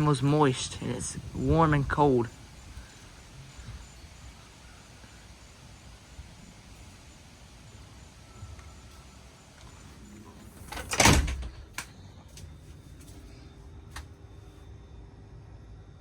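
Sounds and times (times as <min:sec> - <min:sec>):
outdoor hiss: 0:00.0 - 0:14.1
sliding door banging shut: 0:10.5 - 0:11.7.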